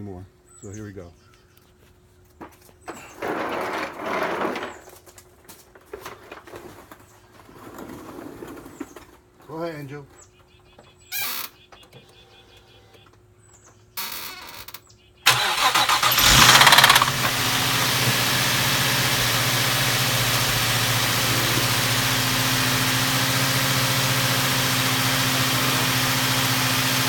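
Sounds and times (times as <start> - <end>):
car engine cold start knocking: 15.3 - 27.0
car engine idling: 15.3 - 27.0.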